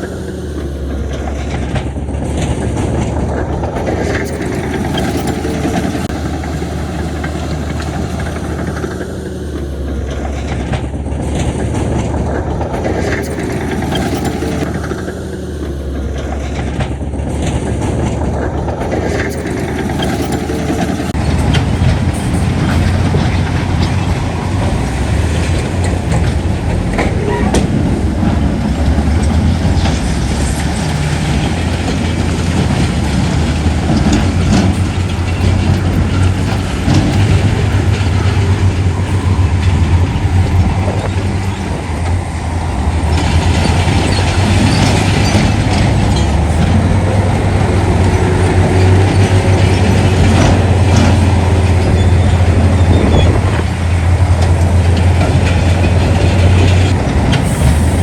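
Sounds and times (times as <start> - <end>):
diesel engines droning: 0.0 - 58.0
metallic clanks and rattles: 16.1 - 58.0.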